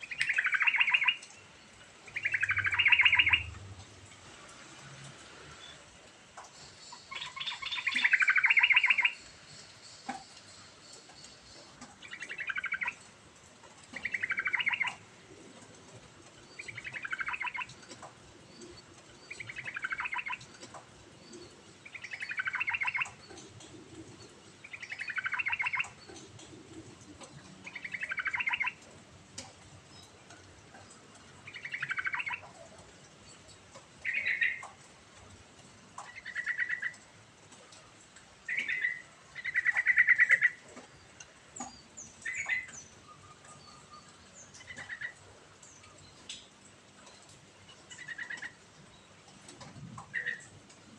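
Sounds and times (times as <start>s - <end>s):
bulbul singing: 0.0s - 1.4s, 2.1s - 3.5s, 6.9s - 9.3s, 9.9s - 13.0s, 14.0s - 15.0s, 16.5s - 17.8s, 18.6s - 20.6s, 21.2s - 23.8s, 24.6s - 26.3s, 27.2s - 28.8s, 31.4s - 32.5s.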